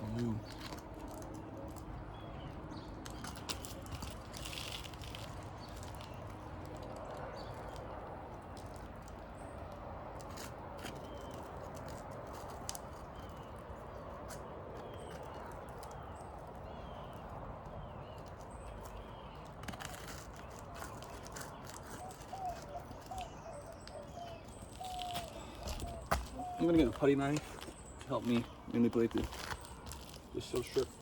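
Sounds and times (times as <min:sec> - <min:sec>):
birds chirping: 0:00.0 - 0:31.0
pry bar scraping under shingles: 0:10.2 - 0:31.0.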